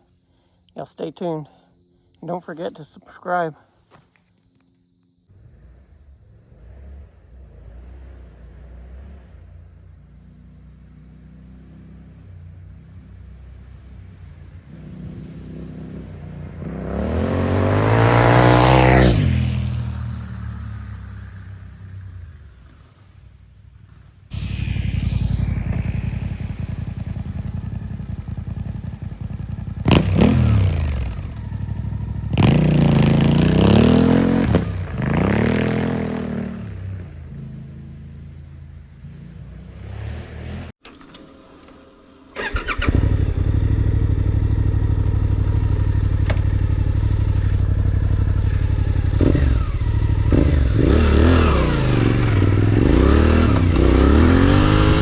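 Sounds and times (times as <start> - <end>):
motorcycle engine revving: 5.3 - 40.8, 42.4 - 55.0
motorcycle passing by: 5.3 - 40.8, 42.4 - 55.0
motorcycle idling: 19.9 - 35.7, 42.4 - 50.8.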